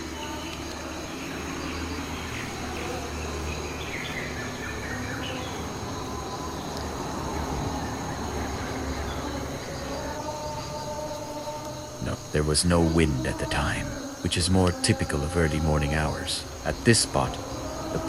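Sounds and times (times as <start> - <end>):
low hum and hiss: 0.0 - 18.0.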